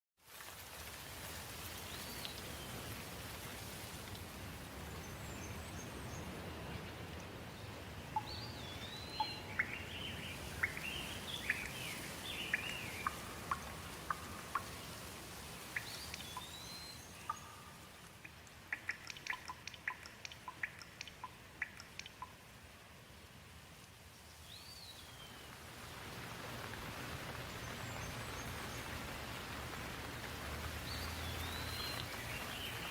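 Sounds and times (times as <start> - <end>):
steady rain: 0.2 - 32.9
water drips ticking: 7.1 - 7.4, 8.1 - 22.7, 25.5 - 32.9
songbirds chirping and singing: 8.2 - 15.0, 15.6 - 18.1.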